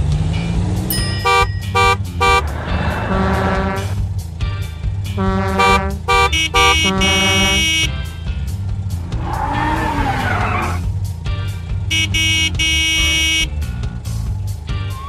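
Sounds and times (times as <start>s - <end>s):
background music with steady beat: 0.0s - 15.0s
cartoon car horns honking: 0.9s - 4.0s, 5.1s - 8.1s, 11.9s - 13.6s
tyre screech: 2.4s - 4.0s, 9.0s - 10.9s.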